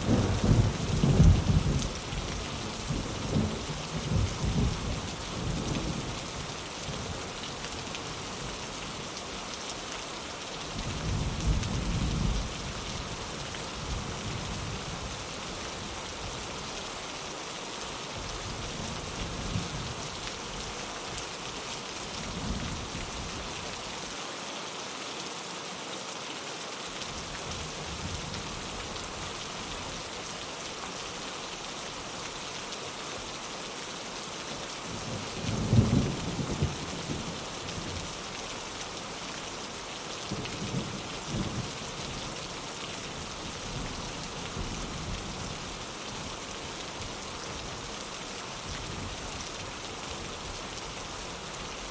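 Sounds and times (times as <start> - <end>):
distant thunder rolling: 0.0 - 1.9
rain on a window pane: 0.0 - 51.9.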